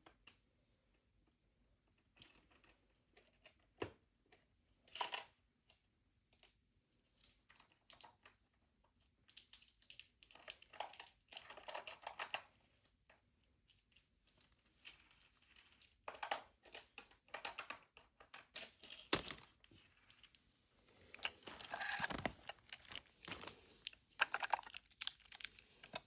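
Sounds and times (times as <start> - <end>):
clicking of plastic toy pieces: 9.2 - 12.5, 13.7 - 20.4, 21.0 - 26.0.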